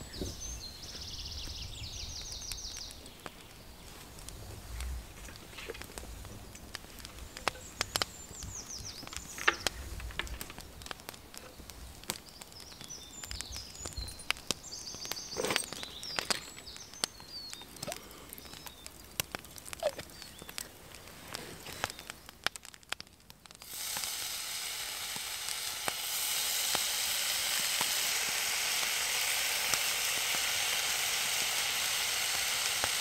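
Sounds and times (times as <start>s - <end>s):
songbirds singing: 0.0s - 22.5s.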